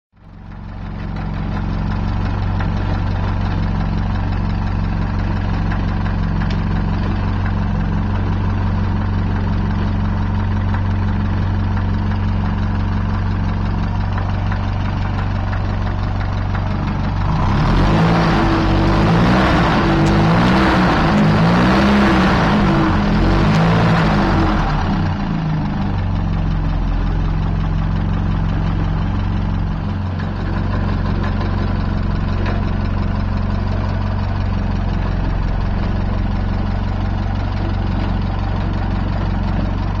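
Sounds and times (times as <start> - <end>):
car engine idling: 0.2 - 40.0
loud sound with shifting pitches: 17.3 - 25.2.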